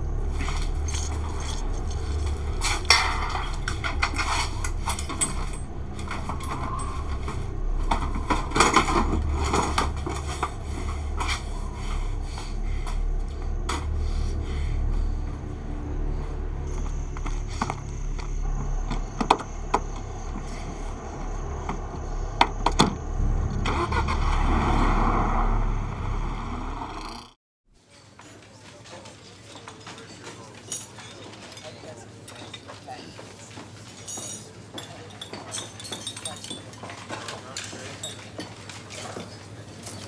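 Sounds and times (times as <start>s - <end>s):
car engine rumbling: 0.0s - 27.4s.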